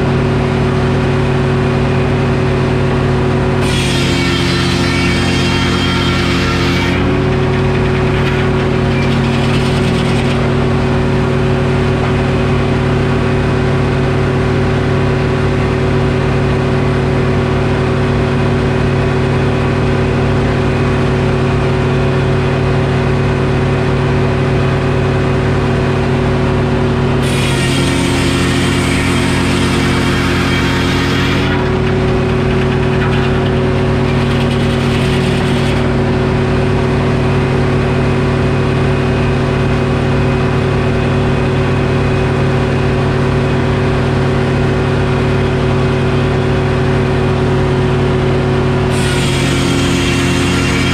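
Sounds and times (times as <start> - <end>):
diesel engine running: 0.0 - 50.9
saw blade cutting wood: 3.6 - 12.8, 27.2 - 36.5, 48.9 - 50.9.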